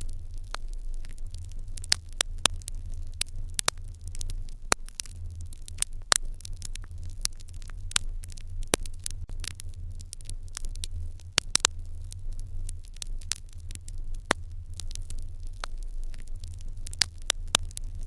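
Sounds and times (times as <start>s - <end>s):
fire crackling and popping: 0.0s - 18.0s.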